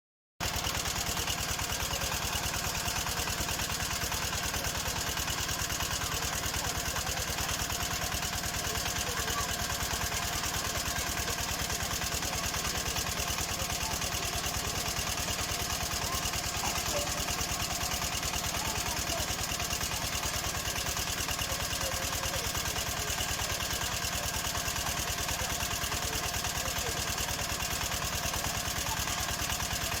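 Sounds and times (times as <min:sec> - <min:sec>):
drilling rig engine running: 0:00.4 - 0:30.0.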